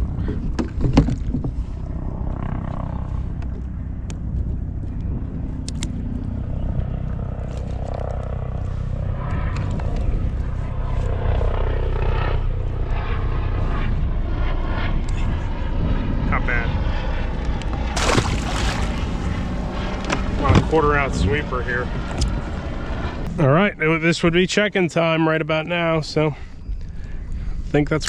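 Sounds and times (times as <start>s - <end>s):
low engine drone: 0.0s - 24.2s.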